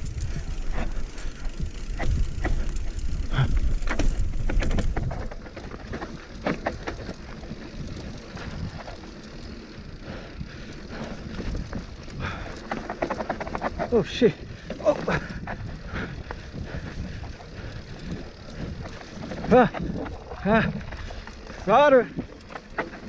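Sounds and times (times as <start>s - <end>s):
bike rattling over rocks: 0.0s - 23.0s
wind rumbling on microphone: 0.0s - 23.0s.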